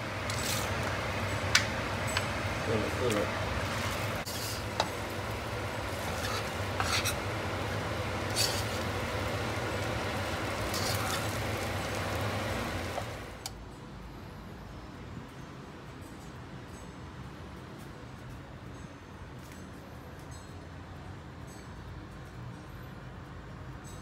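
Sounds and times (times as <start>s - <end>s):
noodles sizzling in a pan: 0.0s - 13.4s
metal spatula scraping a pan: 0.2s - 0.9s, 3.1s - 12.0s.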